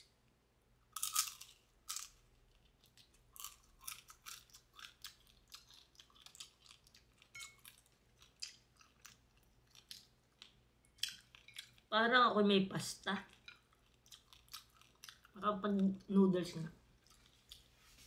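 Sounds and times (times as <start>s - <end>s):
person chewing crispy food: 0.9s - 11.9s, 13.2s - 16.0s, 16.9s - 17.8s.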